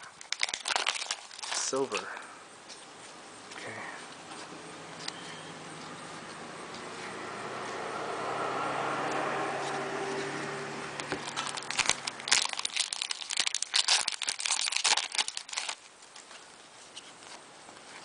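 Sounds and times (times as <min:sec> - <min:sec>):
plastic wrapper crinkling: 0:00.0 - 0:03.1, 0:11.0 - 0:18.0.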